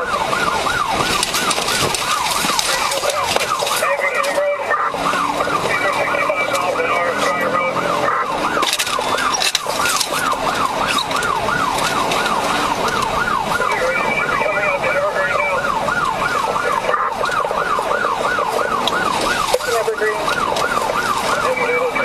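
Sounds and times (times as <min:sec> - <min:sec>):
police siren yelping: 0:00.0 - 0:22.0
road and engine noise: 0:00.0 - 0:22.0.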